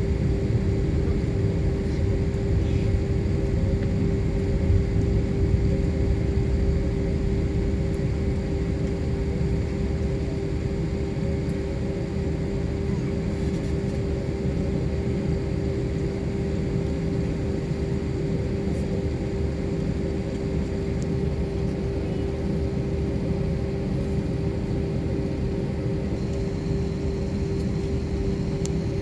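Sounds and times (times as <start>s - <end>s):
airliner cabin engine drone: 0.0s - 29.0s.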